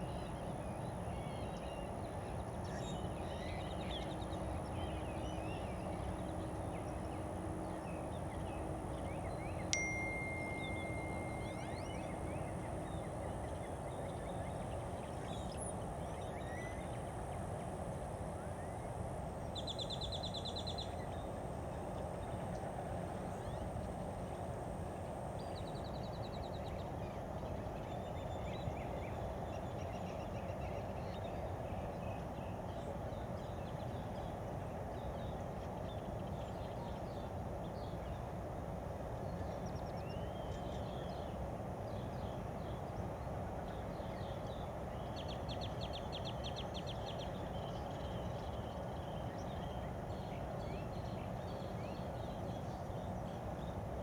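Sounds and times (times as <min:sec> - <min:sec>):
bird trills: 0:09.8 - 0:13.0.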